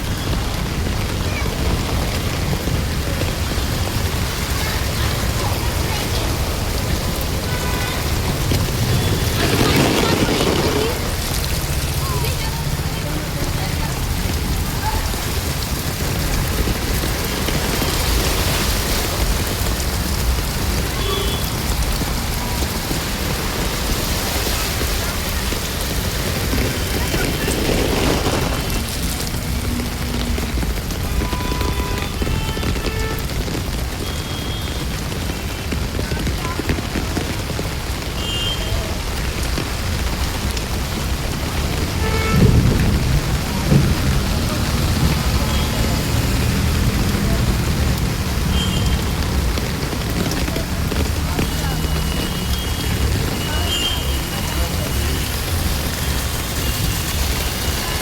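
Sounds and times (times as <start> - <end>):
heavy rain hissing: 0.0 - 58.0
deep rumble: 42.4 - 48.4.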